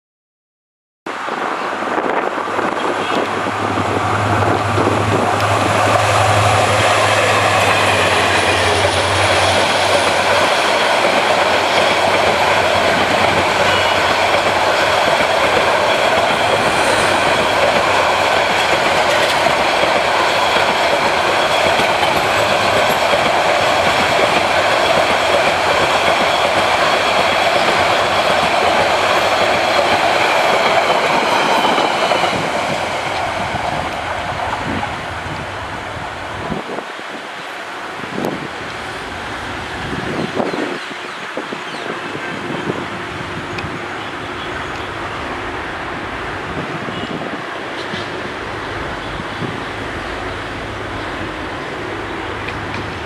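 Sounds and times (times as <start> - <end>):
diesel locomotive engine hum: 1.1 - 53.0
train wheels rumbling and clattering: 1.4 - 53.0
high whine of wheels: 1.8 - 36.8.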